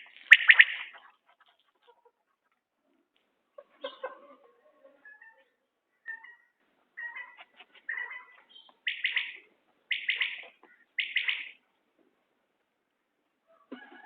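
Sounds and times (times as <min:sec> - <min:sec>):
quail calling: 0:00.0 - 0:02.2, 0:03.7 - 0:11.6.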